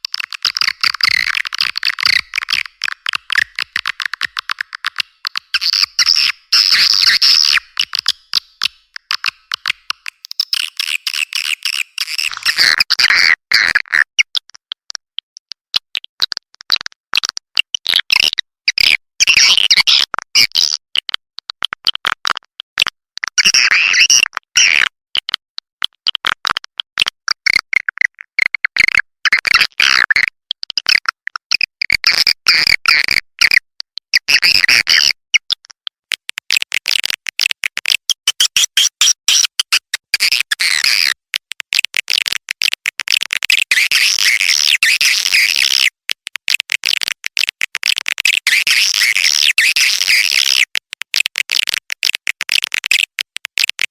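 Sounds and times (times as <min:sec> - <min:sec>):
swiftlet chatter and chirps: 0:00.2 - 0:12.6, 0:43.6 - 0:45.9, 0:48.4 - 0:50.6.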